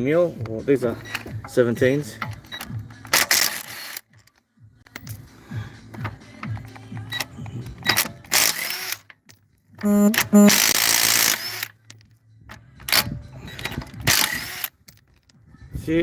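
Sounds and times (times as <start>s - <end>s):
impact wrench bursts: 9.8s - 11.8s, 14.1s - 14.9s.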